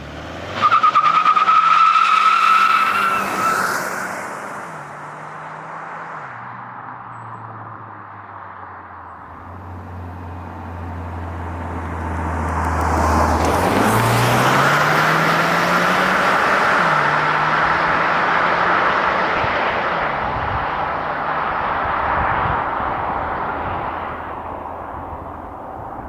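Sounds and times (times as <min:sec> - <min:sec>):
road and wind noise: 0:00.0 - 0:26.0
car engine accelerating: 0:09.0 - 0:25.6.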